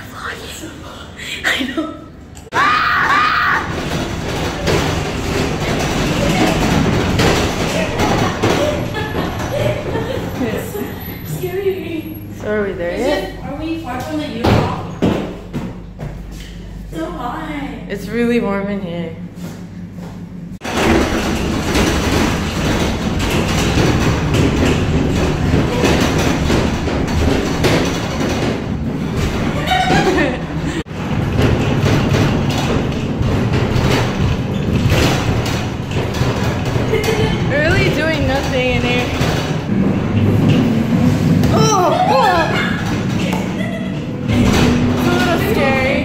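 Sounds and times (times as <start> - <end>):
rattles and knocks from cargo box: 3.7 - 10.8, 20.6 - 41.6
truck road noise rumble: 3.7 - 14.2, 19.3 - 46.0.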